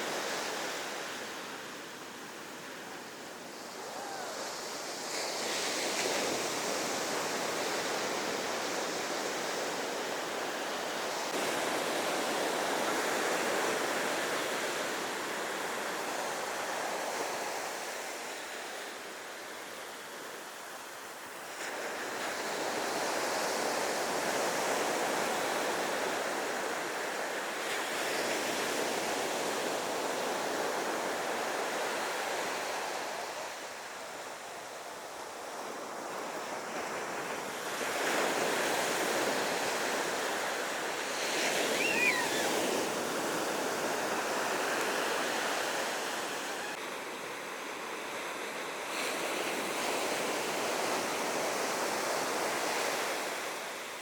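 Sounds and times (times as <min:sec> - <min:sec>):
ocean waves breaking: 0:35.5 - 0:53.6
brief high call: 0:41.6 - 0:42.6.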